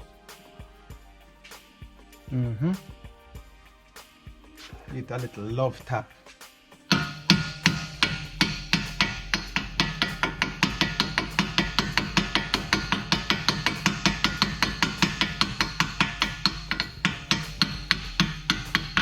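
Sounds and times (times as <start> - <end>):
background music: 0.0 - 19.0
hammer tapping metal: 6.9 - 19.0.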